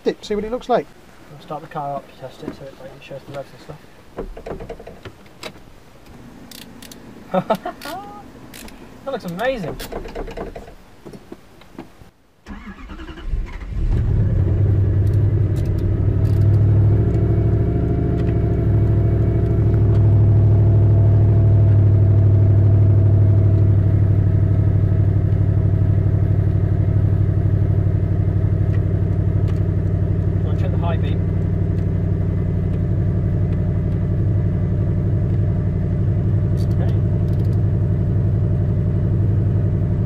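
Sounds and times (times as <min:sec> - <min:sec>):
car engine cranking and starting: 0:04.1 - 0:11.0, 0:12.4 - 0:40.0
car engine idling: 0:14.0 - 0:40.0.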